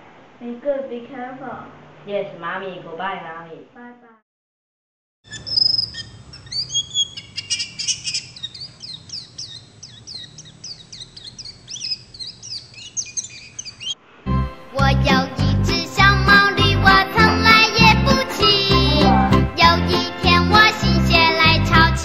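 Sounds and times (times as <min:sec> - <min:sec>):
small birds chirping: 0:05.3 - 0:14.0.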